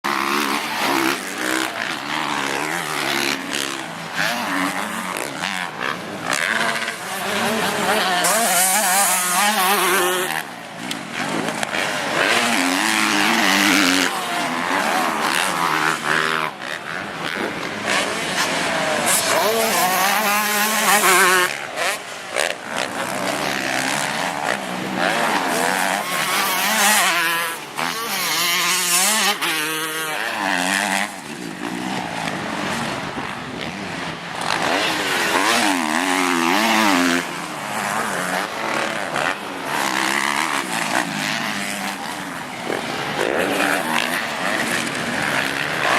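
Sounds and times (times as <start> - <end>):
motocross bike engines revving: 0.0 - 45.9.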